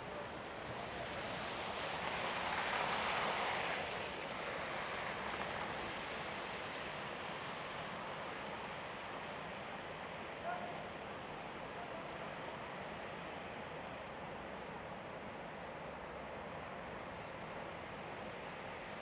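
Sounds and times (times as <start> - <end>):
city street noise: 0.0 - 19.0
vehicle tyre hiss passing: 1.2 - 8.4.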